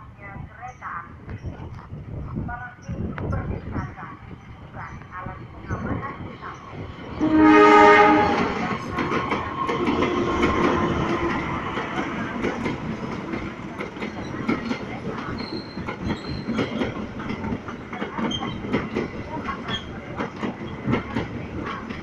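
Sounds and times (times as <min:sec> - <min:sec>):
train wheels clattering on rails: 0:02.9 - 0:22.0
train horn: 0:07.2 - 0:08.7.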